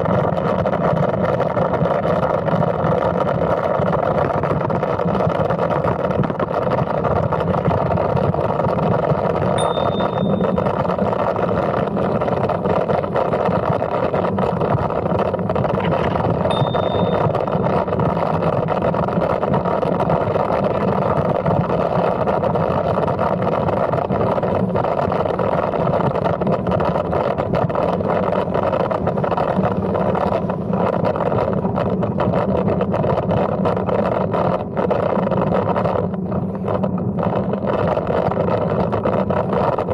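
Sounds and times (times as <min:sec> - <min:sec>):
bicycle tyre rumble: 0:00.0 - 0:39.9
wind rush on microphone: 0:00.0 - 0:39.9
faint short high tones: 0:09.6 - 0:11.2, 0:15.8 - 0:17.9.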